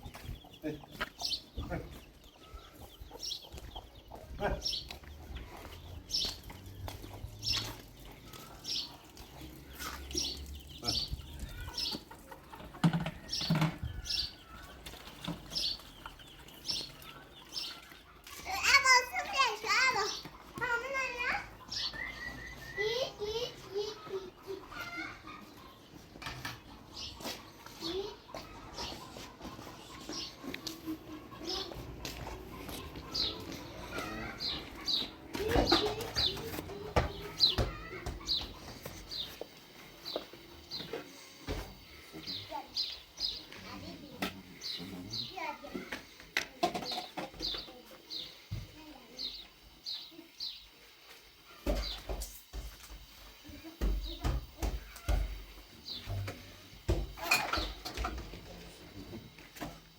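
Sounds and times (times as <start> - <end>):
small bird chirping: 32.5 - 58.1.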